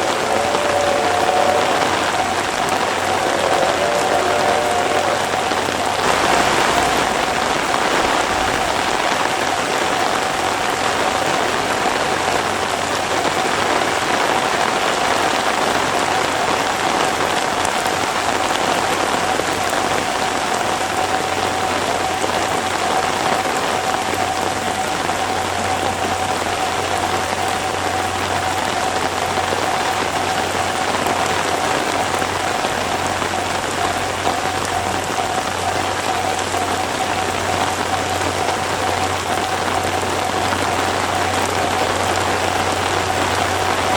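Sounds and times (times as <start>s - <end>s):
faint steady tone: 0.0s - 12.4s
heavy rain falling: 0.0s - 43.9s.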